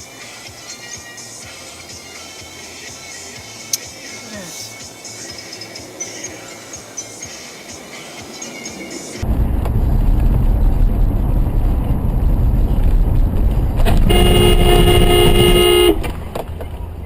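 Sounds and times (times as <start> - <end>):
traffic rumble: 3.4 - 17.0
car horn blast: 13.9 - 16.1.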